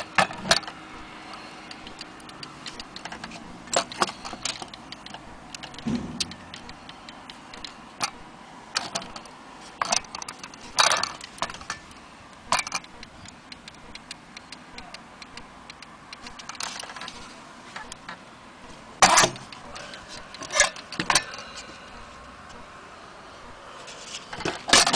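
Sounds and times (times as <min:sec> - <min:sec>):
wall clock clicks and knocks: 0:01.8 - 0:08.2
dull thump: 0:05.8 - 0:06.4.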